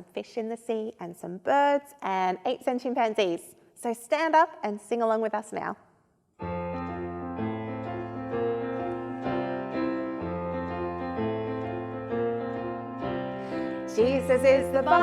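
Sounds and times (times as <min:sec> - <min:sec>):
piano children's song: 0:06.4 - 0:15.0.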